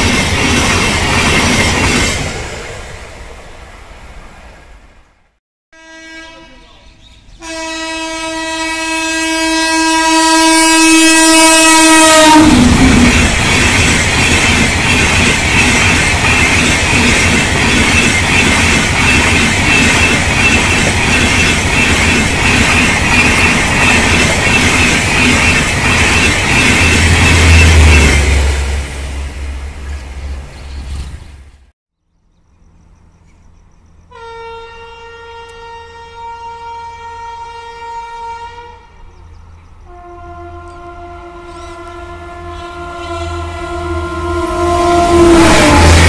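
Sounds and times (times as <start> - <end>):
locomotive horn: 5.8 - 6.8, 7.4 - 13.4, 34.1 - 39.1, 39.8 - 46.0.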